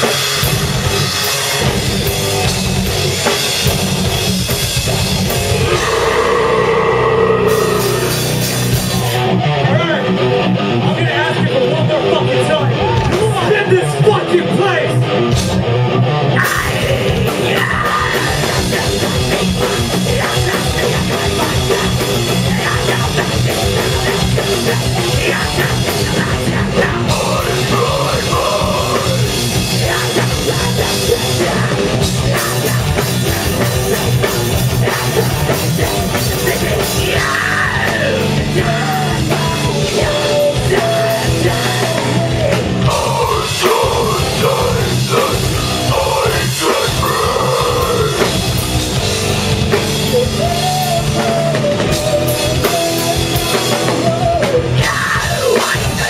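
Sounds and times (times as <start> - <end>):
distorted guitars: 0.0 - 56.0
live heavy rock band: 0.0 - 56.0
pounding drum kit: 0.0 - 56.0
shouted vocals: 5.6 - 8.4, 16.4 - 48.4, 50.1 - 56.0.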